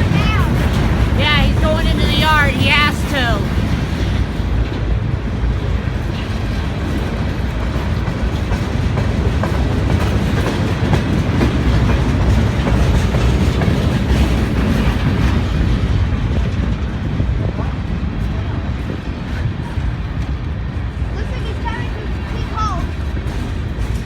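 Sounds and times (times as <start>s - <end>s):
freight train rumbling: 0.0s - 24.0s
wheels clacking over rail joints: 18.2s - 24.0s.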